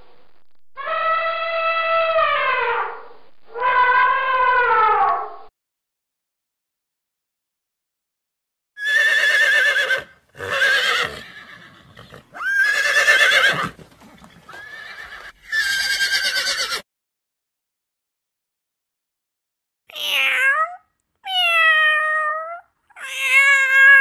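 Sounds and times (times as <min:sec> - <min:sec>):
horse whinnying: 0:08.8 - 0:16.8.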